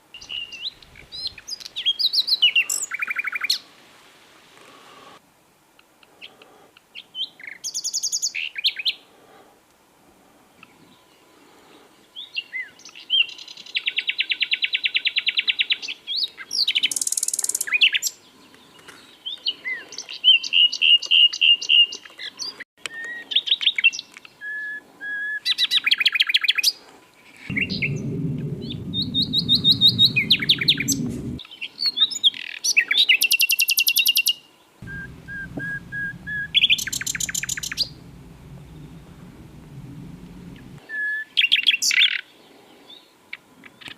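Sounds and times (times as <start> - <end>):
low rumble: 27.5 - 31.4, 34.8 - 40.8
nightingale singing: 34.9 - 40.3.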